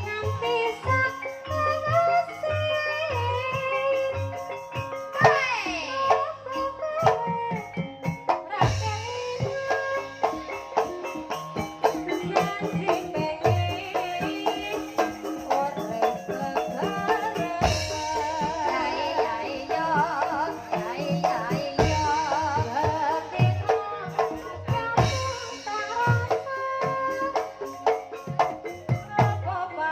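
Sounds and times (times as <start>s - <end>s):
struck pitched percussion ensemble: 0.0s - 29.8s
drum: 0.0s - 29.9s
wavering singing voice: 8.6s - 27.9s.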